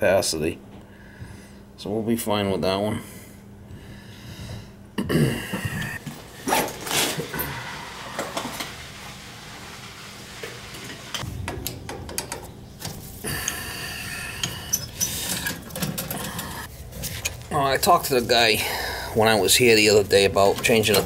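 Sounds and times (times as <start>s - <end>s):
hand tools clinking: 11.5s - 17.4s.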